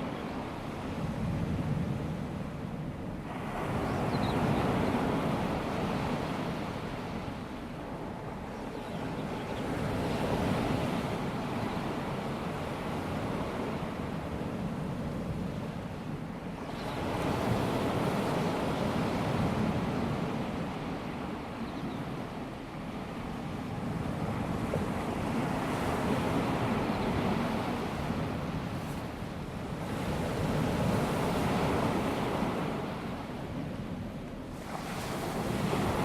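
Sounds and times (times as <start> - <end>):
waves washing up a sandy beach: 22.3 - 36.0.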